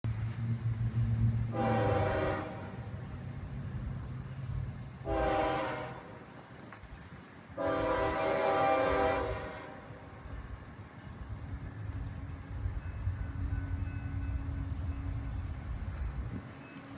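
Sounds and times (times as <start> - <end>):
diesel engine rumble: 0.0 - 5.2
locomotive air horn blasts: 1.5 - 2.9, 5.0 - 6.3, 7.6 - 10.1.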